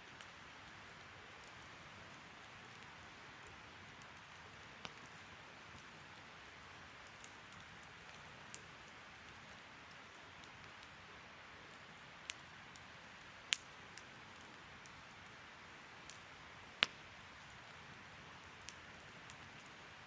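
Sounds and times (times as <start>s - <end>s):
fire pops: 13.4s - 15.0s, 16.0s - 17.8s.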